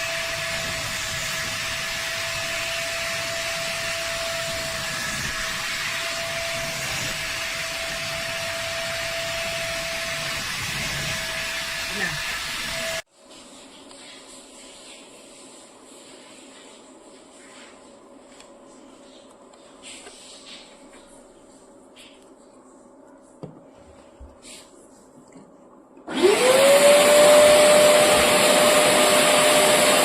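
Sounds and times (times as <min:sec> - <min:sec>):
carpet cleaner suction motor: 0:00.0 - 0:13.0, 0:26.1 - 0:30.0.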